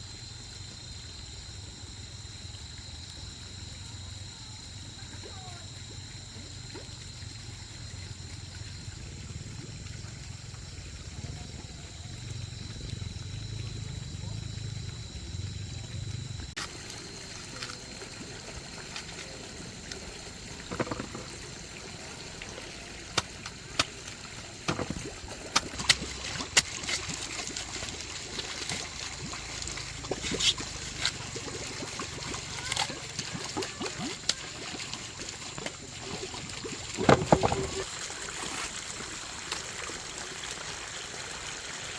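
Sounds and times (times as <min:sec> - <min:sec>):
water trickling and splashing: 0:00.0 - 0:41.9
sharp clicks and knocks: 0:20.7 - 0:21.3.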